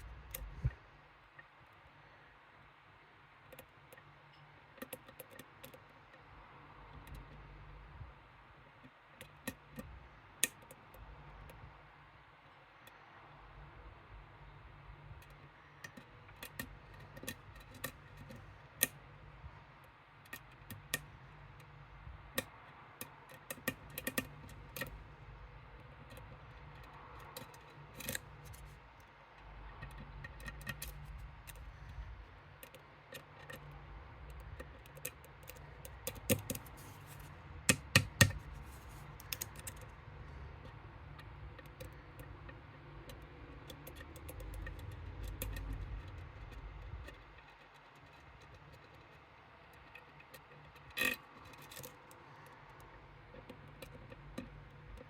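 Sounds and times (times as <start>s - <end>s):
lock picks clicking on pins: 29.6s - 31.9s, 32.6s - 39.9s.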